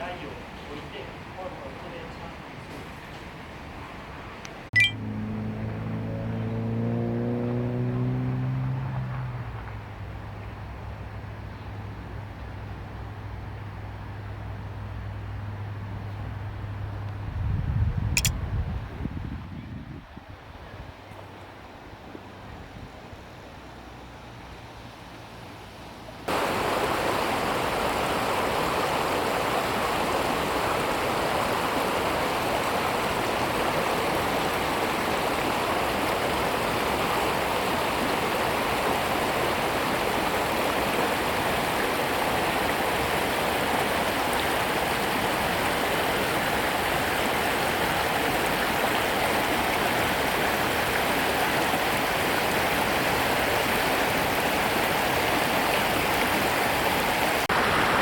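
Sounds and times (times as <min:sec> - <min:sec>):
flowing stream water: 0:23.2 - 0:58.0.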